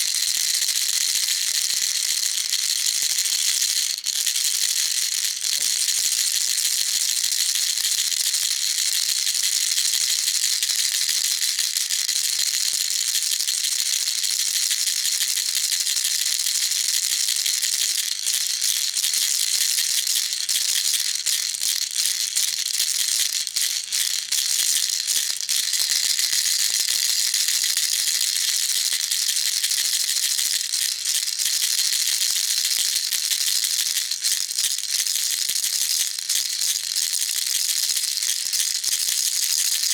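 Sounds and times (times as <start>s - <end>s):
baby rattle shaking: 13.5s - 39.9s.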